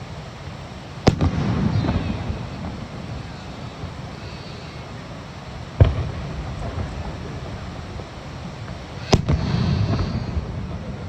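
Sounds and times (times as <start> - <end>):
firework booms: 1.0 - 11.0.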